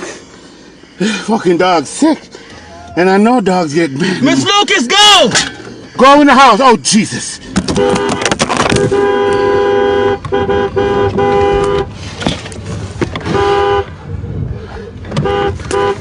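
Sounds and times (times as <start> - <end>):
car horn honking: 7.6 - 12.0, 13.2 - 14.0, 15.1 - 16.0.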